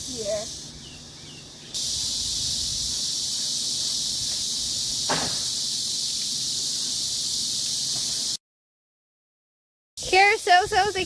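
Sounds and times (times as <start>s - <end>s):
cicadas buzzing: 0.0s - 8.4s.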